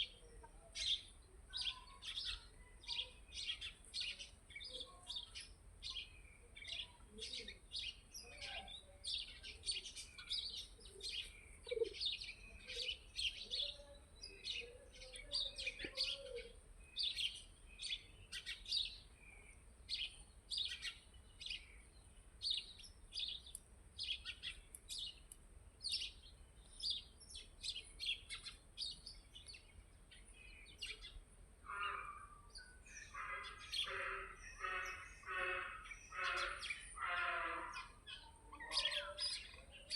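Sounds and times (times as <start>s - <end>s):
birds chirping: 0.0s - 39.9s
lower fuller bird call: 31.7s - 39.9s.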